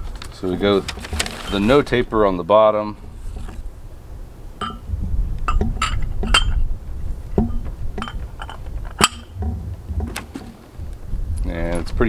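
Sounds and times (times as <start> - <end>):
low rumble: 1.8 - 12.0
steel parts clinking: 4.6 - 4.9, 5.5 - 6.7, 7.4 - 9.5.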